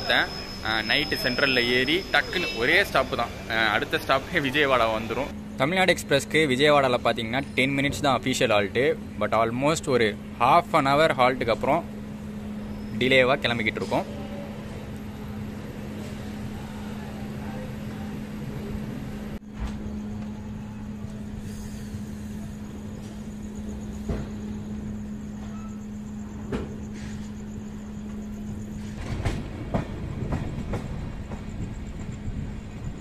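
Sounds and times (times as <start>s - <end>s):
train running noise: 0.0s - 33.0s
wheels clacking over rail joints: 28.7s - 32.4s.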